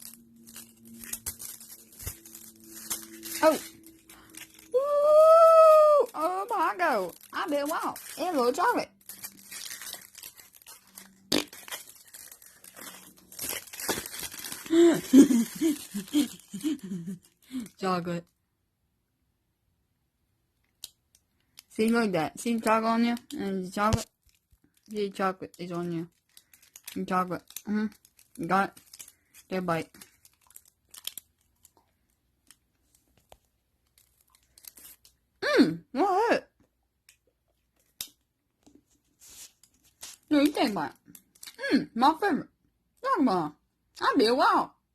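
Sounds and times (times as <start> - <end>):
packaging crinkling: 0.0 - 17.7, 23.2 - 35.3, 39.2 - 40.3.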